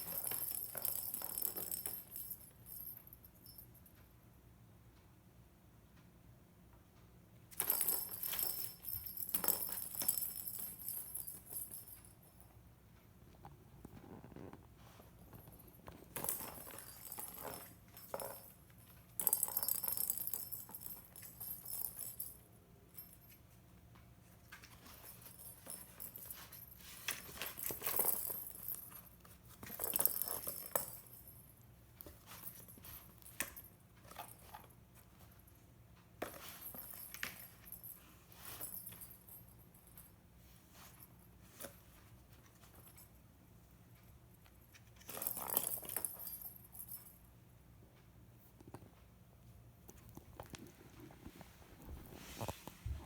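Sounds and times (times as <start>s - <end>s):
cat toy jingling and rattling: 0.0s - 3.8s, 7.5s - 12.6s, 14.0s - 23.6s, 24.3s - 35.5s, 36.2s - 43.2s, 44.7s - 47.2s.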